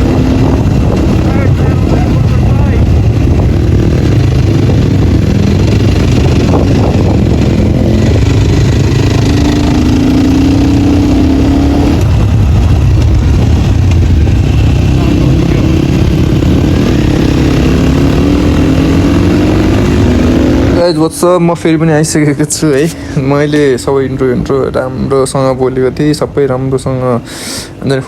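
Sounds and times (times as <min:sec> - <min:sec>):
dirt bike engine revving: 0:00.0 - 0:21.2.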